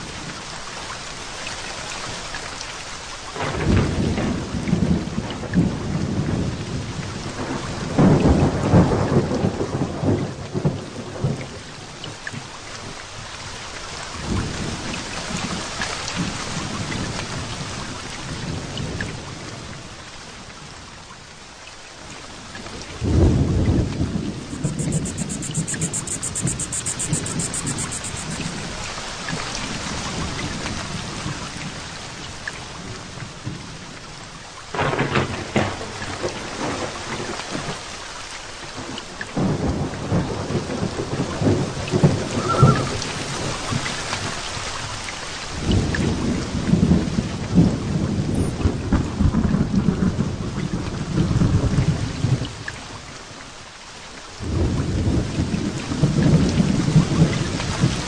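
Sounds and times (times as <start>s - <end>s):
heavy rain falling: 0.0s - 58.0s
thunder rumbling: 23.0s - 28.7s, 39.4s - 43.7s, 45.8s - 51.9s.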